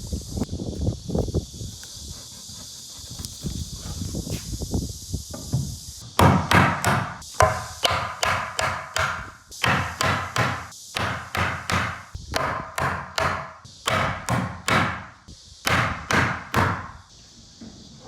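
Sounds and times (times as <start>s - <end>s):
hand tool working wood: 5.4s - 15.0s.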